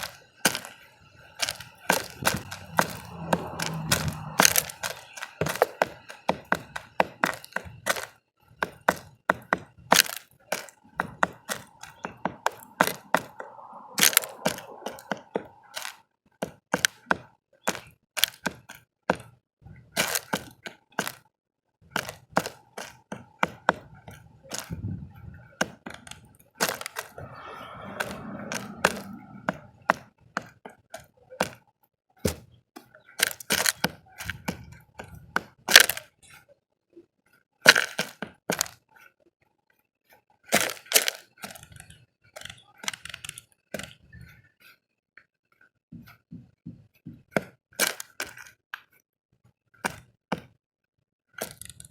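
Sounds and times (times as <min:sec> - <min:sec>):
birds pecking seed: 0:00.0 - 0:17.0, 0:20.0 - 0:21.2, 0:21.9 - 0:30.0, 0:33.0 - 0:36.4, 0:40.5 - 0:44.4.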